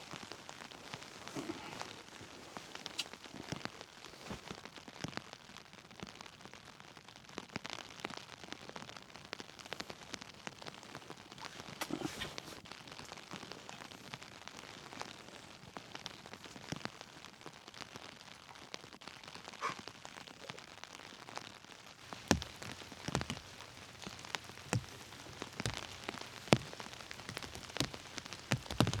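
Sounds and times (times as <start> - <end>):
rain falling: 12.6 - 29.0
heavy drops tapping: 22.1 - 29.0.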